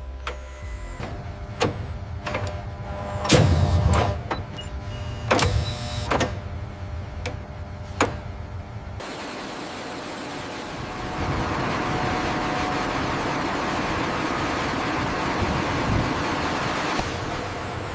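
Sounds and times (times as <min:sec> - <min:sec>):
low machine hum: 0:00.0 - 0:17.9
steady rushing noise: 0:09.0 - 0:17.9.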